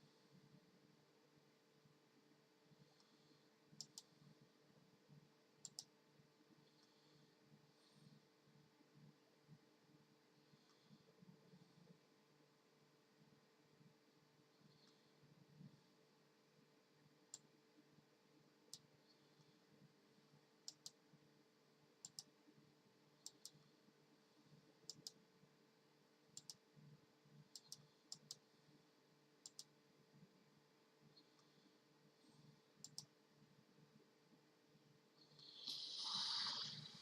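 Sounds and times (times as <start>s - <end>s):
faint sharp clicks: 3.8s - 4.2s, 5.6s - 6.0s, 20.6s - 21.0s, 22.0s - 22.4s, 23.2s - 23.7s, 24.8s - 25.2s, 26.4s - 26.6s, 27.5s - 28.5s, 29.4s - 29.8s, 32.8s - 33.2s.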